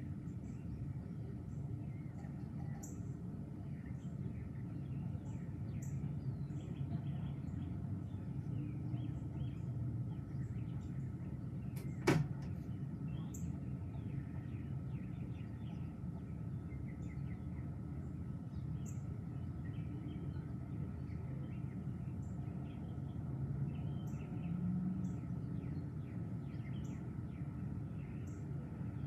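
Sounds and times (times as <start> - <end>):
songbirds chirping: 0.0 - 29.0
steady low rumble: 0.0 - 29.0.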